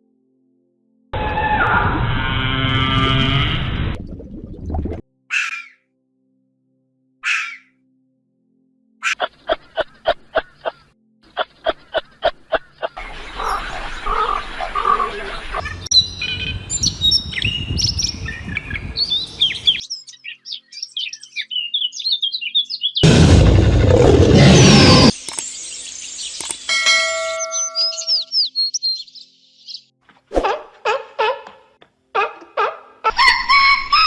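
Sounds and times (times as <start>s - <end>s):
sharp animal calls: 5.3s - 5.8s, 7.2s - 7.7s
birds chirping and twittering: 5.3s - 5.9s, 7.2s - 7.7s, 9.0s - 23.3s, 24.3s - 29.9s
loud noisy sound: 23.0s - 25.2s.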